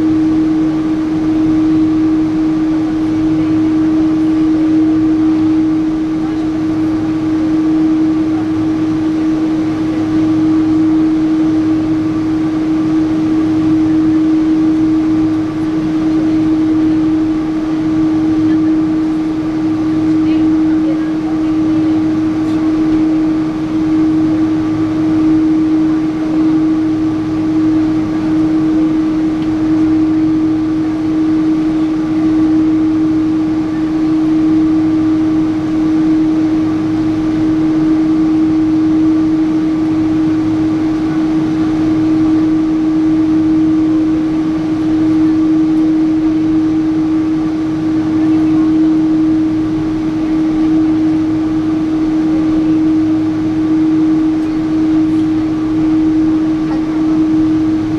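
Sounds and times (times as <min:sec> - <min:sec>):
airliner cabin engine drone: 0:00.0 - 0:57.9.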